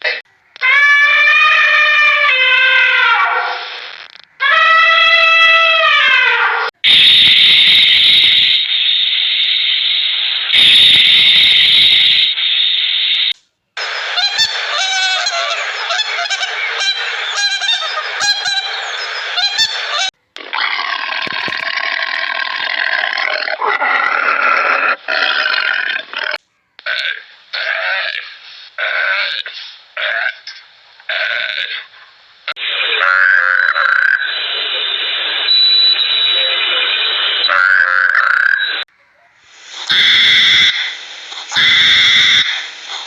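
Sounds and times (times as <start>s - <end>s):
chatter of animal calls: 0.5s - 3.8s, 14.0s - 43.0s
animal hissing: 39.4s - 43.0s.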